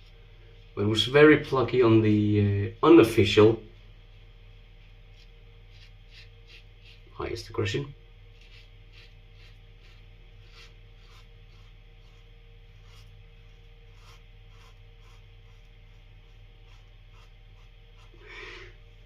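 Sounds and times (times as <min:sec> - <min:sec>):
steady low hum: 0:00.0 - 0:19.0
razor scraping stubble: 0:04.8 - 0:18.8.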